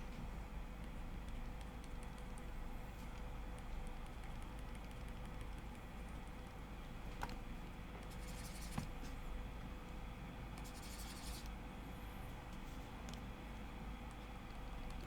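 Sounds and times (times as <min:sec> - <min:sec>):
steady low hum: 0:00.0 - 0:15.0
stylus scratching on tablet: 0:08.0 - 0:08.9, 0:10.6 - 0:11.5.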